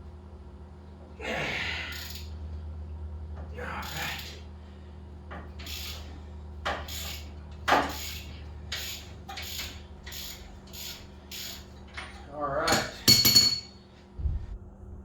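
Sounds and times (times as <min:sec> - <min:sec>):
ratchet wrench clicking: 0:01.9 - 0:02.3, 0:05.6 - 0:06.1, 0:06.7 - 0:12.1.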